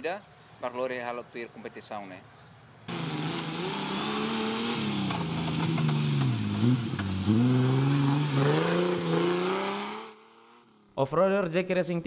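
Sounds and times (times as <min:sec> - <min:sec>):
off-road vehicle engine revving: 0:02.9 - 0:10.6.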